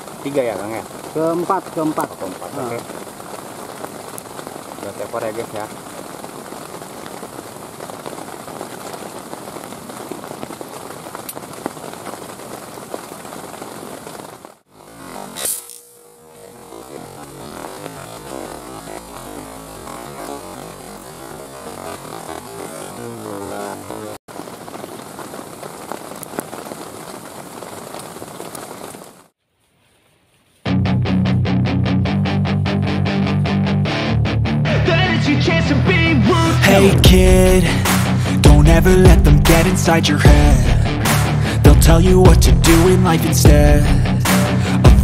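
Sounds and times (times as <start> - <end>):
heavy rain falling: 0.0 - 29.3, 34.7 - 45.0
loud guitar music: 30.7 - 45.0.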